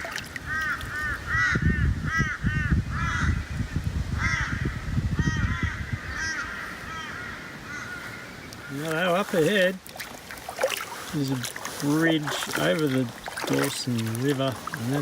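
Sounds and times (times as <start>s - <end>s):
crows cawing: 0.4s - 3.4s, 4.2s - 8.9s.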